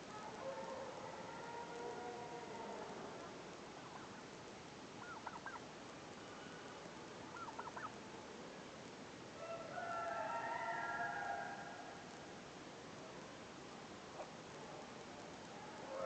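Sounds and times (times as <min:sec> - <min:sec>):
rooster crowing: 0:09.4 - 0:11.8.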